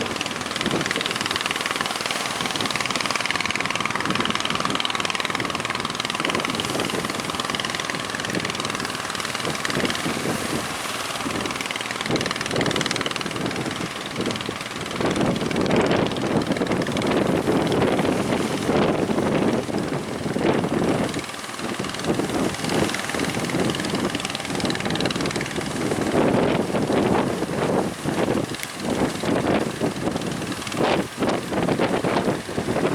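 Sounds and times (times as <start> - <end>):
boat engine running: 0.0 - 32.9
wind buffeting microphone: 0.0 - 32.9.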